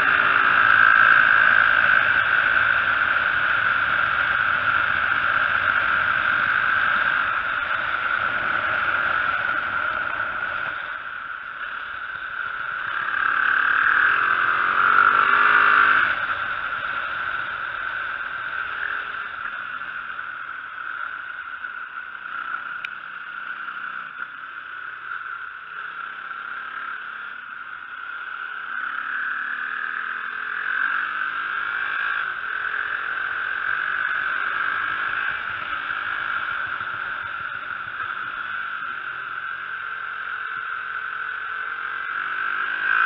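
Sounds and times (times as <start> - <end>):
dirt bike engine revving: 0.0 - 20.1
steady rushing noise: 0.0 - 26.9
sharp tick: 22.8 - 23.0.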